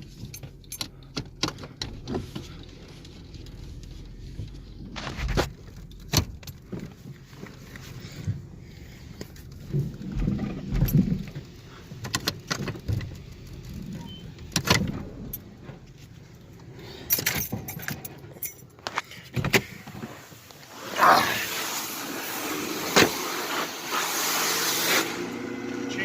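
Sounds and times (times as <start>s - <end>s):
sharp clicks and clattering knocks: 9.1s - 15.8s
pressure washer spray hiss: 20.7s - 25.2s.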